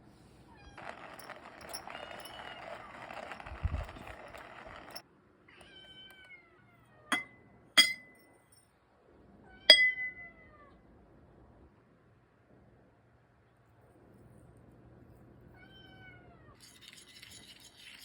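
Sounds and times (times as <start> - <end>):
sharp ringing clinks: 0.8 - 5.0, 7.1 - 8.5, 9.7 - 10.2.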